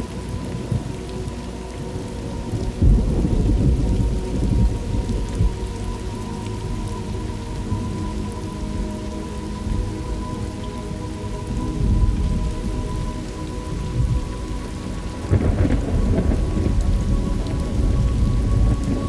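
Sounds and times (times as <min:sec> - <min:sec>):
steady rain: 0:00.0 - 0:19.0
rolling thunder: 0:02.2 - 0:05.8, 0:13.7 - 0:19.0.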